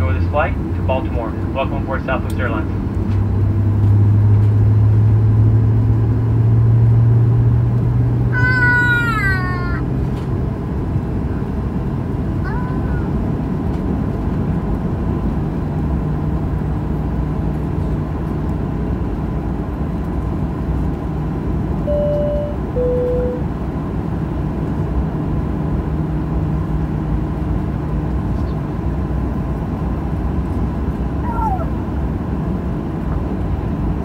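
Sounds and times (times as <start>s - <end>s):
aircraft cabin rumble: 0.0s - 34.0s
two-tone cabin chime: 21.9s - 23.4s.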